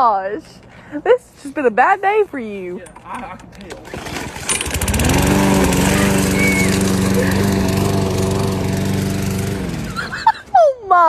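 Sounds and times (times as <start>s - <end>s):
lawn mower engine running: 3.8s - 10.6s.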